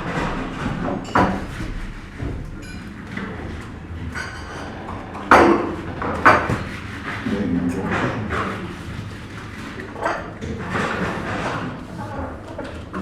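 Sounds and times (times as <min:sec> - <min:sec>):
crockery and cutlery clinking: 0:00.0 - 0:08.7.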